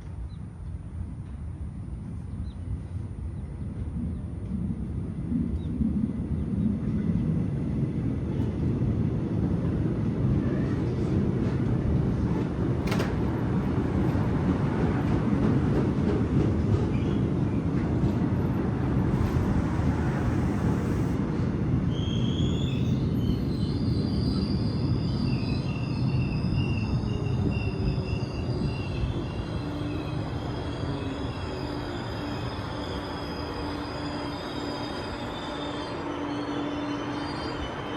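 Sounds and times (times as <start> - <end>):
train wheels rumbling on track: 0.0 - 37.9
steel wheels squealing: 19.0 - 21.2, 21.9 - 37.9.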